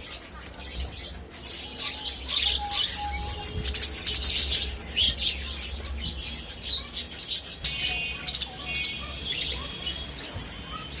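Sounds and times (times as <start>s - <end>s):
budgerigars chirping: 0.0s - 10.2s.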